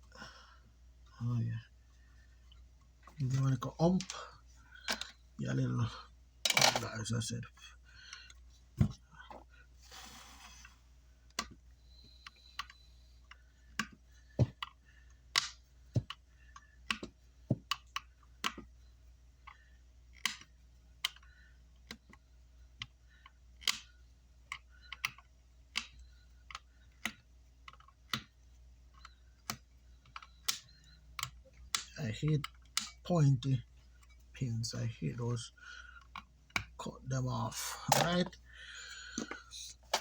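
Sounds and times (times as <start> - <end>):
steady low hum: 28.2 - 40.0
hand tools clicking and tapping: 39.1 - 40.0.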